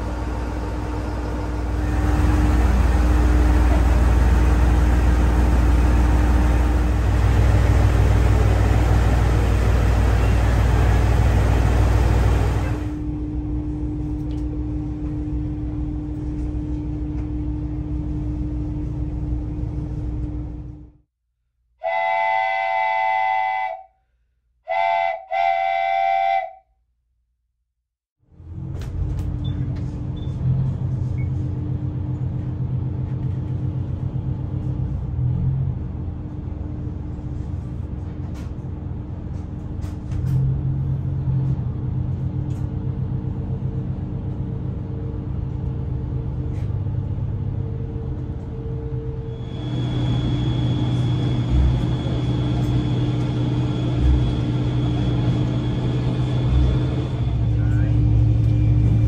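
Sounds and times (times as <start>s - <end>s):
diesel railcar running: 0.0s - 21.0s, 21.8s - 23.8s, 24.7s - 26.6s, 28.2s - 59.0s
two-tone train horn: 21.8s - 24.0s, 24.7s - 26.7s.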